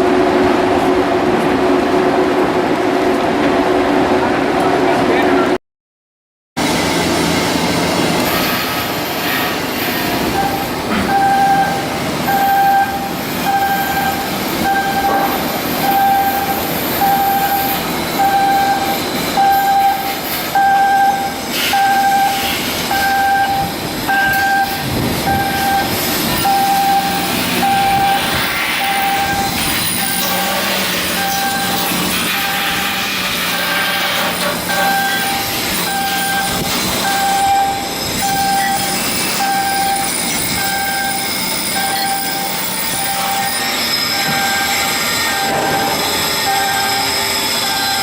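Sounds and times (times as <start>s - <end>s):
metal work noise: 6.6s - 48.0s
electronic warning beep: 10.3s - 32.7s, 34.7s - 48.0s.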